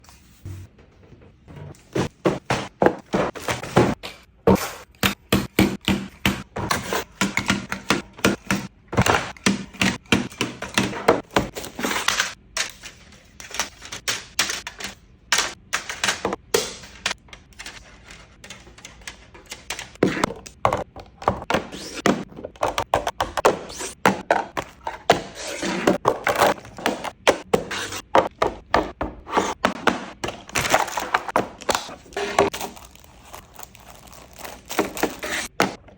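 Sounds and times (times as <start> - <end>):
groceries clunking on shelves: 1.2 - 12.5, 19.3 - 32.8.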